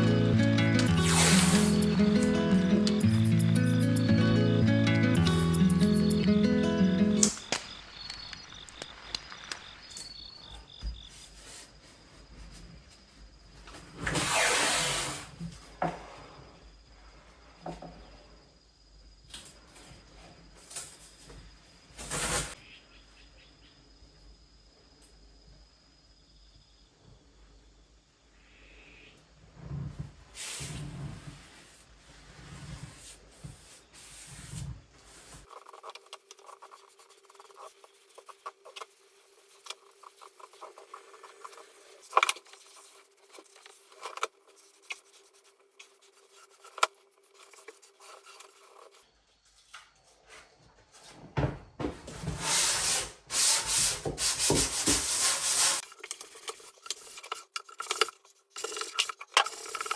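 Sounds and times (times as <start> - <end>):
hands rubbing and scraping: 0.0 - 4.1, 7.2 - 10.2, 32.2 - 49.0.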